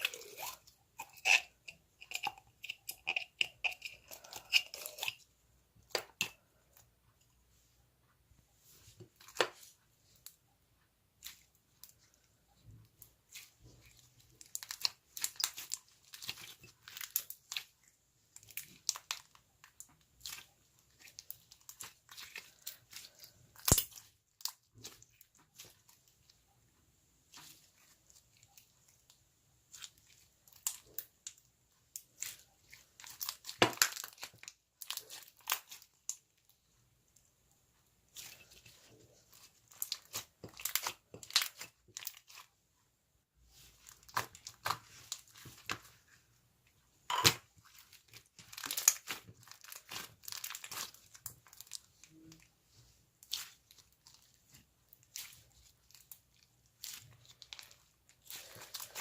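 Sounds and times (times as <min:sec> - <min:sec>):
slime crackling and popping: 0:14.2 - 0:17.8, 0:18.4 - 0:26.0, 0:29.7 - 0:36.3, 0:38.1 - 0:42.4, 0:47.1 - 0:52.5, 0:53.2 - 0:59.0.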